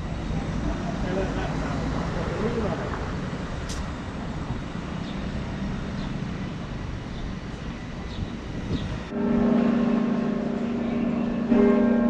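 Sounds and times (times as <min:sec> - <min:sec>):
moving vehicle rumble: 0:00.0 - 0:09.6.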